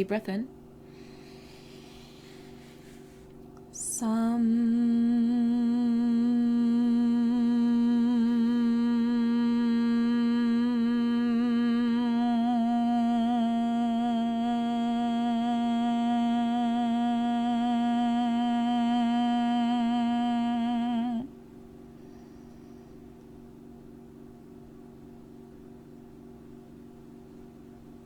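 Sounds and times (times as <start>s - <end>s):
person chanting a hummed syllable: 1.3s - 21.4s.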